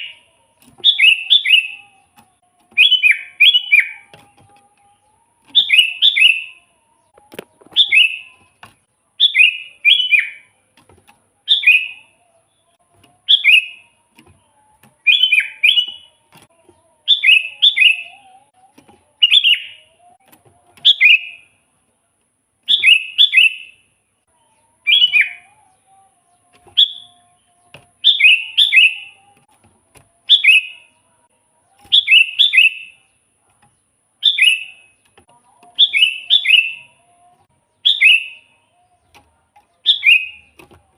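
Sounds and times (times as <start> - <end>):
bulbul singing bright notes: 11.5 - 21.5.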